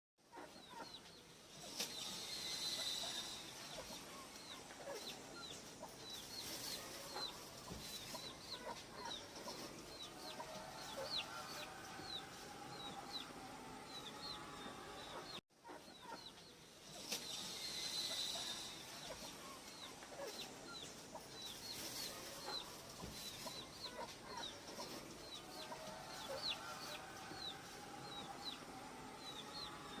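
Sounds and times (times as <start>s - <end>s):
owl hissing call: 1.8s - 4.6s, 17.2s - 20.8s.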